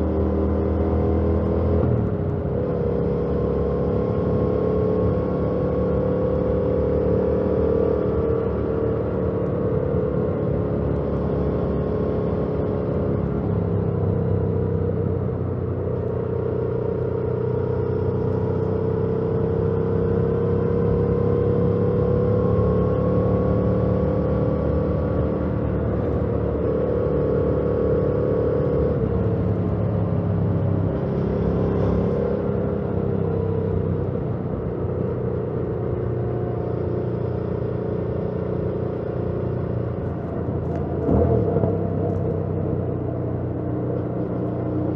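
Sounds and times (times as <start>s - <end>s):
motorcycle engine while riding: 0.0s - 44.9s.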